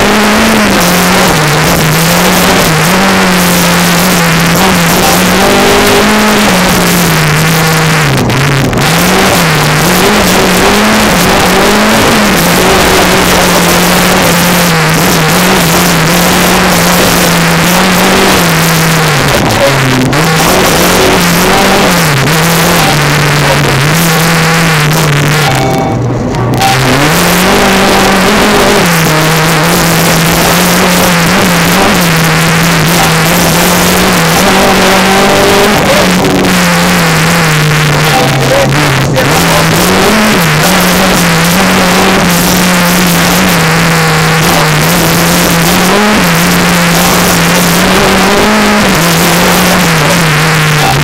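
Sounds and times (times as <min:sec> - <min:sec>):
rally car engine revving: 0:00.0 - 0:51.0.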